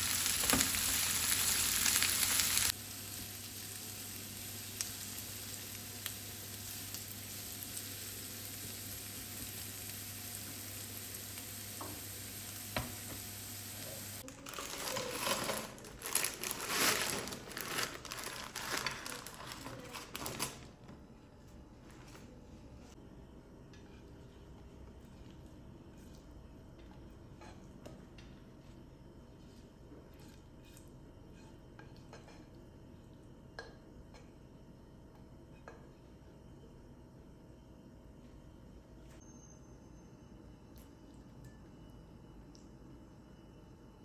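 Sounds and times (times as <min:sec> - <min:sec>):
vegetables sizzling in oil: 0:00.0 - 0:14.2.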